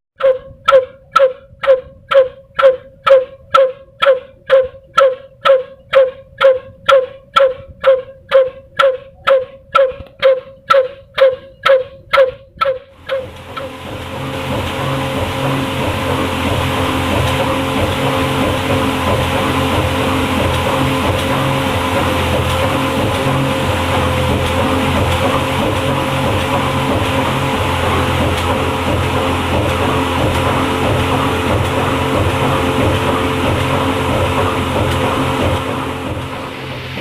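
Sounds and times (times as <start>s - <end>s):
diesel engine running slowly: 13.0s - 37.0s
machinery running: 13.0s - 37.0s.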